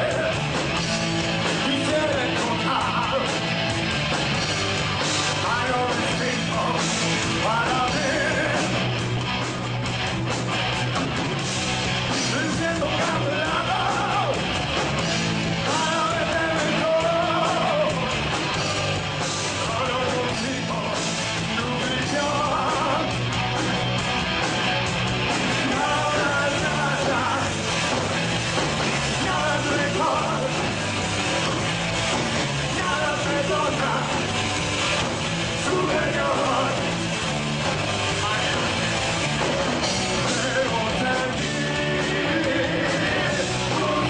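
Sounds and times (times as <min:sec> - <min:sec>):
shouted lead vocal: 0:00.0 - 0:00.6, 0:01.4 - 0:03.5, 0:05.3 - 0:09.0, 0:12.1 - 0:14.6, 0:15.5 - 0:23.4, 0:25.4 - 0:27.9, 0:28.8 - 0:31.0, 0:32.4 - 0:34.4, 0:35.3 - 0:39.3, 0:40.0 - 0:44.0
bass line: 0:00.0 - 0:44.0
distorted guitars: 0:00.0 - 0:44.0.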